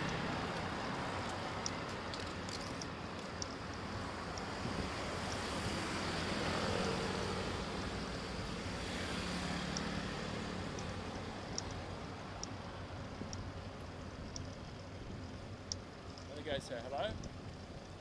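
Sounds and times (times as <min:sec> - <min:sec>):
road traffic noise: 0:00.0 - 0:18.0
wind on microphone: 0:04.6 - 0:06.0
vehicle passing: 0:04.6 - 0:12.2.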